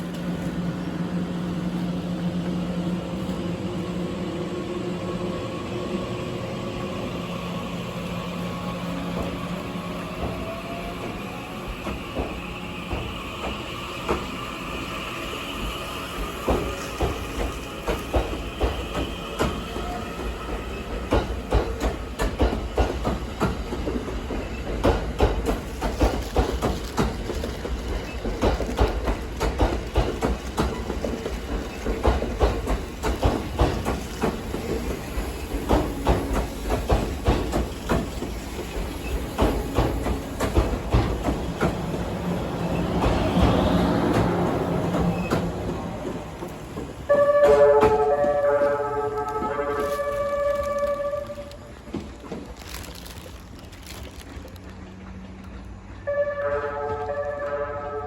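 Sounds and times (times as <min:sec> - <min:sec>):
train wheels clacking over rail joints: 0:11.0 - 0:14.4, 0:16.0 - 0:48.5.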